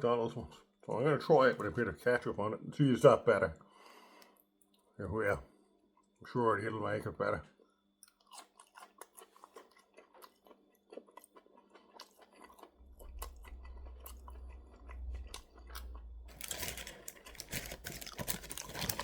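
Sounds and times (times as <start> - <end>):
person chewing food: 8.0 - 19.0
low rumble: 12.8 - 18.3.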